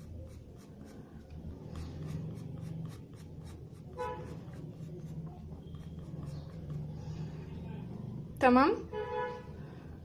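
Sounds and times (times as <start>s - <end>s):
pencil scratching on paper: 0.0s - 7.2s.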